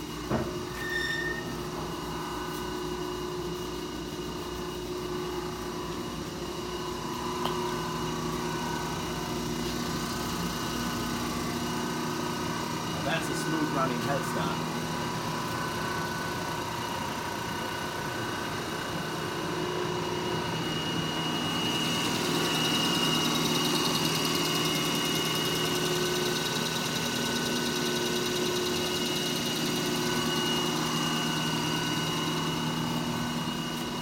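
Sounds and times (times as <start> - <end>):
lathe running with mechanical hum: 0.0 - 34.0.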